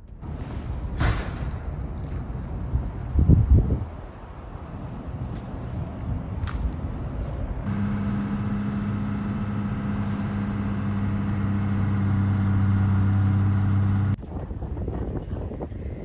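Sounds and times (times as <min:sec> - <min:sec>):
rough wind noise: 0:00.0 - 0:06.4, 0:07.6 - 0:16.0
vehicle engine humming: 0:06.9 - 0:14.2.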